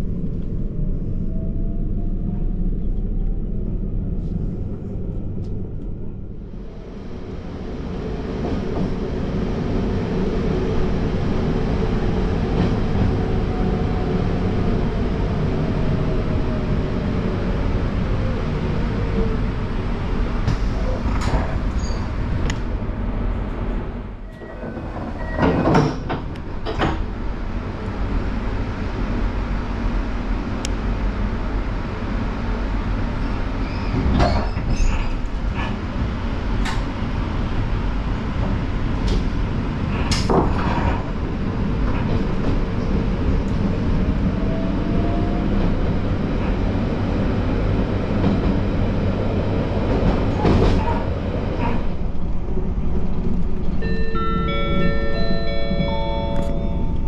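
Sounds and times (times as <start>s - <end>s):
train wheels rumbling on rail: 0.0s - 57.0s
rail joint clacks: 20.4s - 22.7s, 24.2s - 28.0s, 33.2s - 37.1s, 38.4s - 57.0s.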